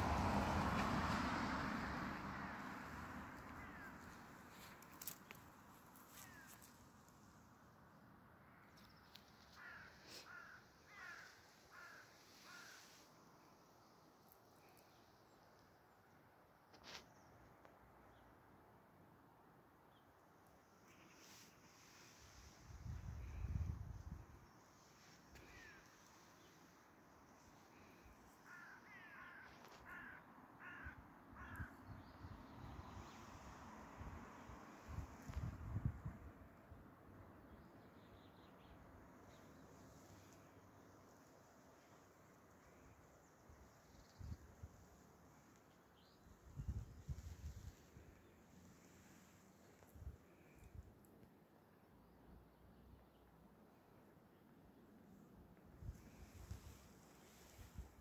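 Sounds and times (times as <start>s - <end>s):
faint outdoor background noise: 0.0s - 58.0s
faint falling bird calls: 8.7s - 12.8s, 25.3s - 26.5s, 27.7s - 31.7s.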